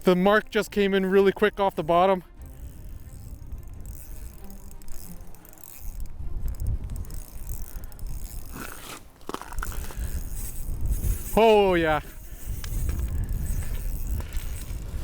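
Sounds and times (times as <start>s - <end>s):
wind buffeting microphone: 2.3s - 8.8s, 9.4s - 15.0s.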